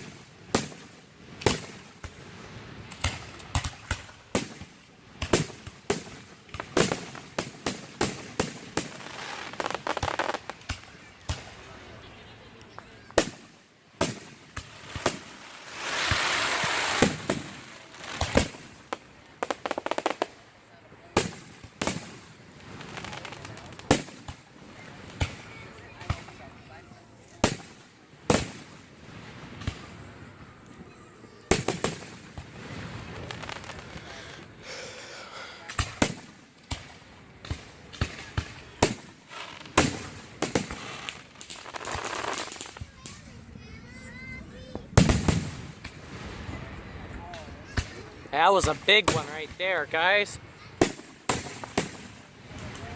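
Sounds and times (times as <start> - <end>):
firework hiss: 0.0 - 11.6, 12.8 - 20.5, 21.2 - 26.4, 31.3 - 43.4
firework booms: 12.7 - 20.4, 21.0 - 26.4, 27.3 - 30.5, 31.4 - 34.4, 35.6 - 43.2, 44.8 - 52.9.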